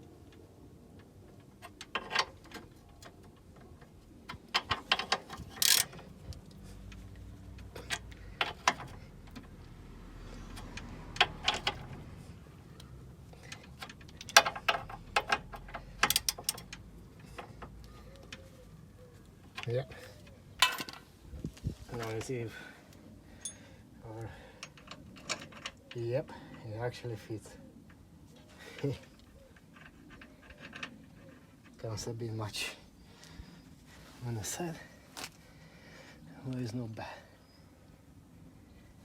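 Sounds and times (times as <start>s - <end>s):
metallic clicks and clinks: 13.5s - 16.9s, 23.4s - 23.6s.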